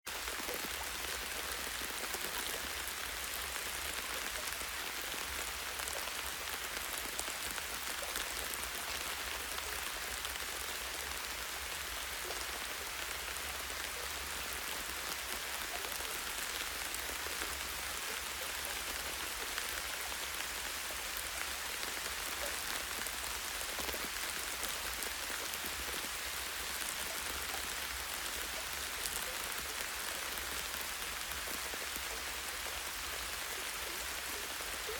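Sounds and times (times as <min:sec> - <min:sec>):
light rain on leaves: 0:00.1 - 0:34.9.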